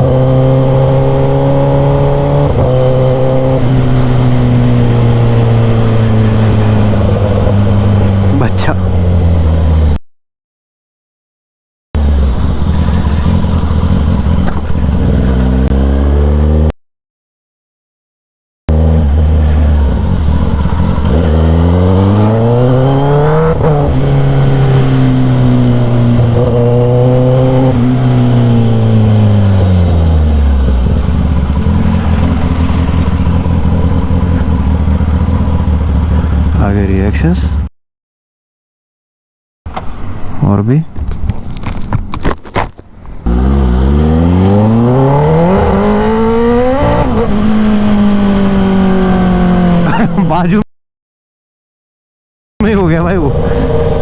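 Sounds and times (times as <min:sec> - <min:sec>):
motorcycle engine revving: 0:00.0 - 0:10.0, 0:12.0 - 0:16.7, 0:18.7 - 0:37.7, 0:42.5 - 0:50.5.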